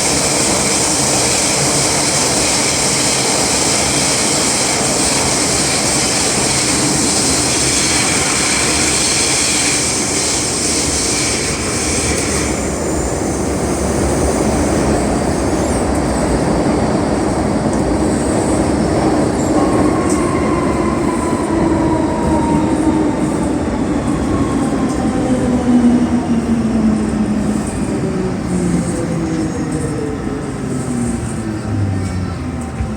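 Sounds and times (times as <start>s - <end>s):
train rushing at speed: 0.0s - 32.9s
electric braking whine: 29.2s - 32.9s.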